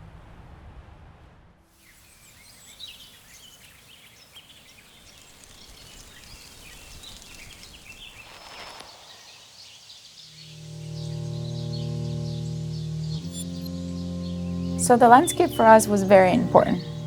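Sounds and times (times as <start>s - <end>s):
birds chirping and twittering: 1.8s - 17.0s
music: 10.4s - 17.0s.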